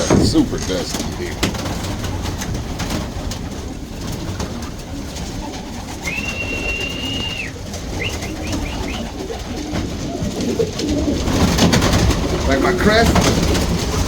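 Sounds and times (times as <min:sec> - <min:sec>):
pigeons cooing: 0:00.0 - 0:14.0
high thin whistle: 0:06.0 - 0:09.1
short rising chirps: 0:06.0 - 0:09.1.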